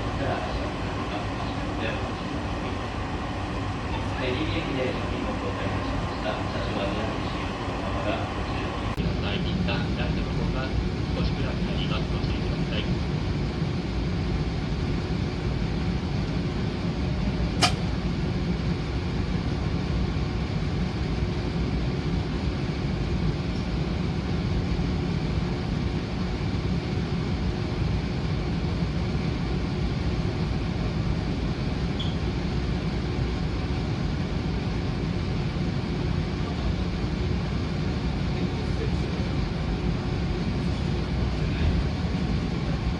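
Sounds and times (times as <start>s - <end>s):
train rumble inside carriage: 0.0s - 13.2s, 14.8s - 42.9s
sharp click: 17.6s - 17.9s.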